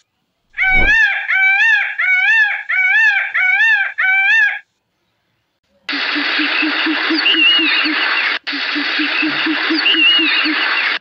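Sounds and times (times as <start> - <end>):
low thump: 0.6 - 1.0
peacock calling: 0.6 - 4.6.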